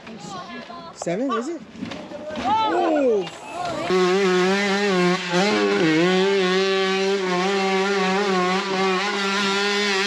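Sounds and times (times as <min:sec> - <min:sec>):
off-road motorcycle revving: 0:03.5 - 0:10.0.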